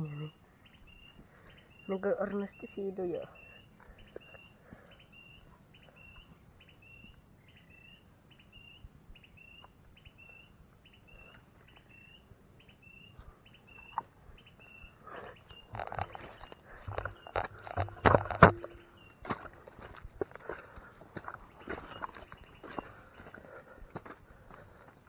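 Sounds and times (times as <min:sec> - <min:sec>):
footsteps through undergrowth: 0:15.5 - 0:25.0.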